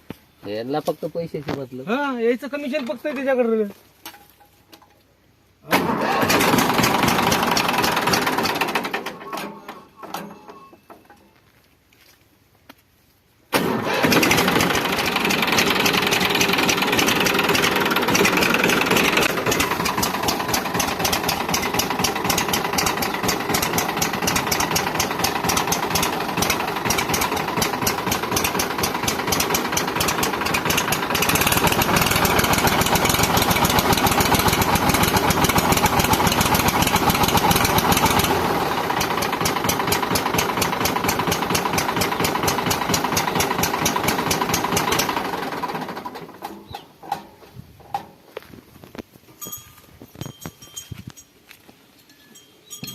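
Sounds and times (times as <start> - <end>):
tractor diesel engine clattering: 5.7 - 11.3, 13.6 - 48.2, 52.3 - 52.9.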